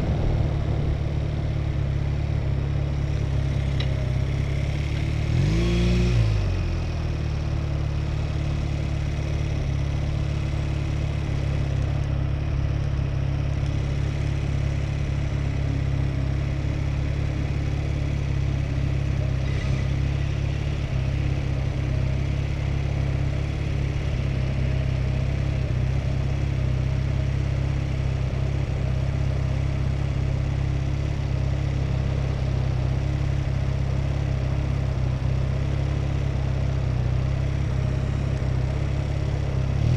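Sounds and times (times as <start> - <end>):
whoosh dropping in pitch: 0.0 - 2.8
low wind rumble: 0.0 - 5.3
motorcycle engine drone: 0.0 - 39.9.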